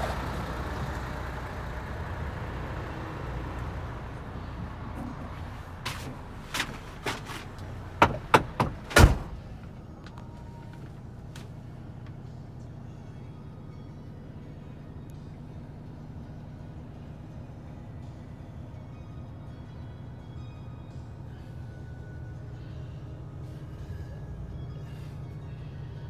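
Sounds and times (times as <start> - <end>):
low engine hum: 0.0 - 26.0
knocks and clunks: 3.3 - 11.5
heavy door slam: 5.9 - 9.8.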